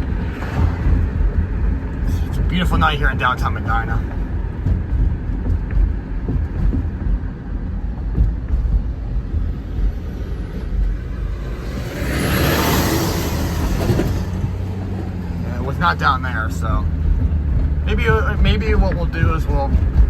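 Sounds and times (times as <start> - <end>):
rushing noise: 0.0 - 17.4
car engine and road noise: 0.0 - 20.0.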